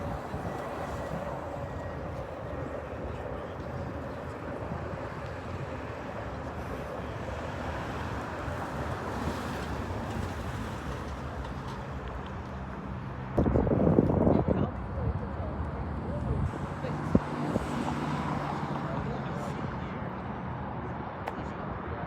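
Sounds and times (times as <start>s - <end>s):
faint jet whine: 0.0s - 8.2s.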